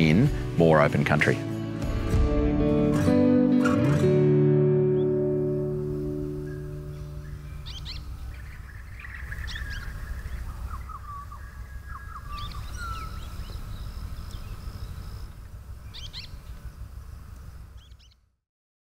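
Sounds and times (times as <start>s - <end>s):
birds chirping and whistling: 4.9s - 18.2s
low background rumble: 5.6s - 18.2s.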